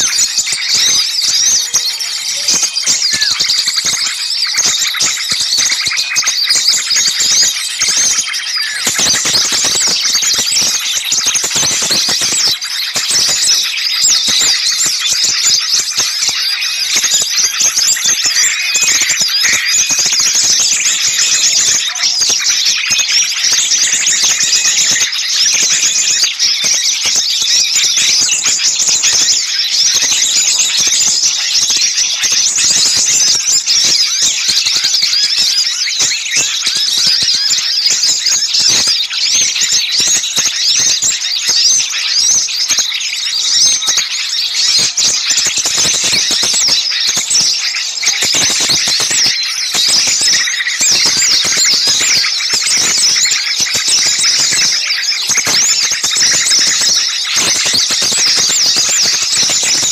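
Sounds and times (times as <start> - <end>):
small songbirds chattering: 0.0 - 59.9.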